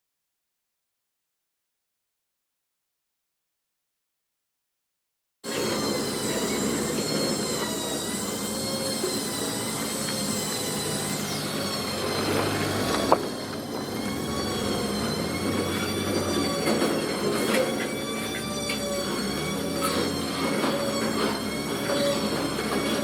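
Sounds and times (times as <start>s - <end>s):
heavy machinery humming: 5.5s - 23.0s
metallic whine: 5.5s - 23.0s.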